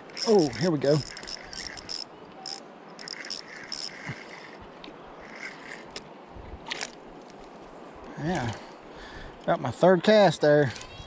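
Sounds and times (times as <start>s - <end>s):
fishing reel clicking: 0.0s - 4.6s, 5.2s - 6.0s.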